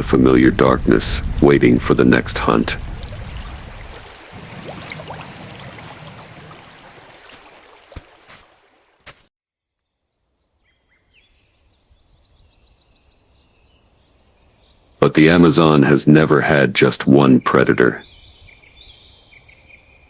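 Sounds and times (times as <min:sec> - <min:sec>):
outdoor ambience: 0:00.0 - 0:09.2.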